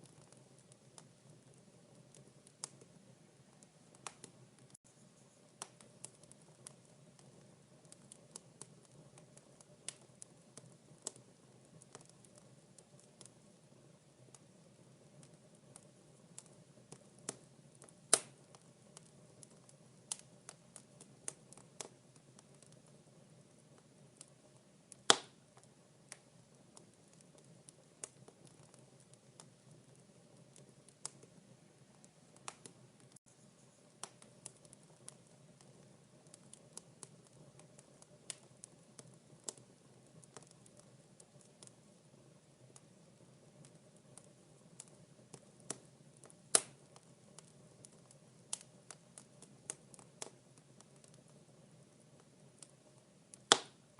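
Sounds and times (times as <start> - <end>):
soft low hiss: 0.0 - 53.9
wood fire crackling: 0.0 - 53.9
sharp fire pops: 3.9 - 4.8, 15.2 - 19.1, 24.2 - 29.6, 32.4 - 33.2, 34.0 - 38.4, 43.6 - 47.5, 53.3 - 53.8.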